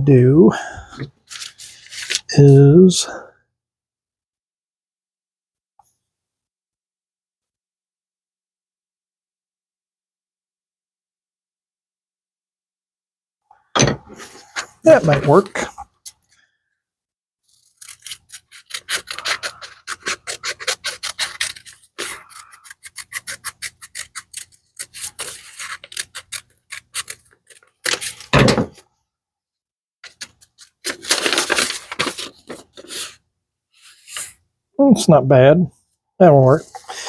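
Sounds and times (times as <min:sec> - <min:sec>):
paper rustle or knock: 0:27.9 - 0:28.8.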